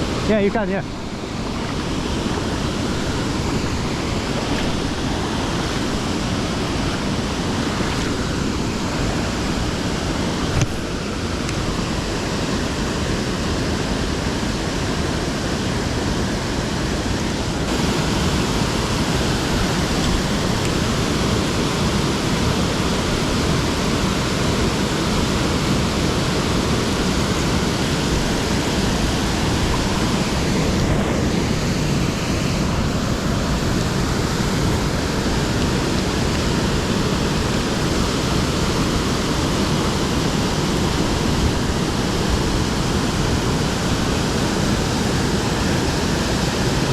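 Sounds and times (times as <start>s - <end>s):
waterfall roaring: 0.0s - 46.9s.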